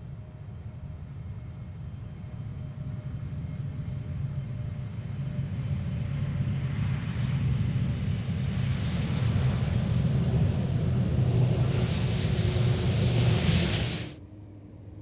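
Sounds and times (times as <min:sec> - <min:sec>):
jet engines rumbling: 0:00.0 - 0:14.2
hiss: 0:08.4 - 0:14.2.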